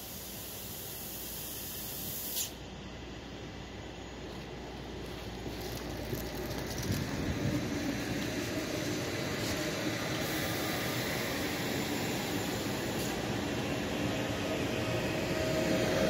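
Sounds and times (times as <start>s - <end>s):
train wheels on rails: 3.6s - 16.0s.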